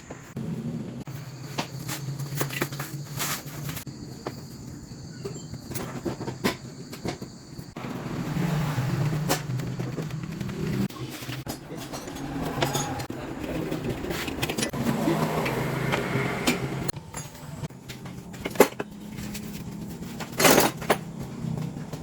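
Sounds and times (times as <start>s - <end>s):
vehicle engine running: 7.7s - 22.0s.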